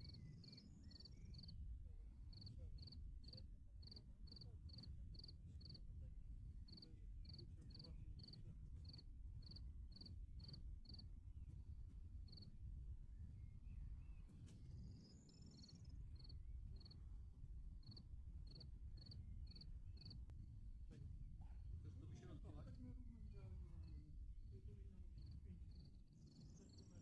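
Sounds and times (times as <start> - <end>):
cricket chirping: 0.0 - 1.6, 2.3 - 5.8, 6.7 - 11.0, 12.3 - 12.5, 14.0 - 17.0, 17.8 - 20.2, 25.2 - 27.0.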